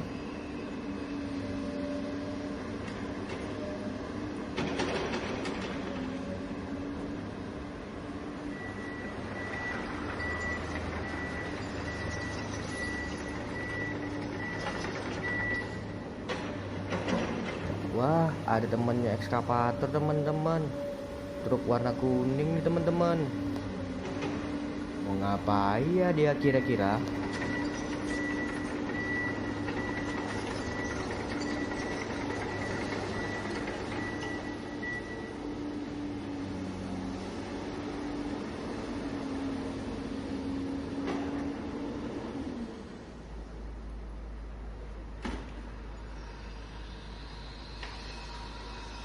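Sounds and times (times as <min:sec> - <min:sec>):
high reversing beeper: 0:18.8 - 0:23.6.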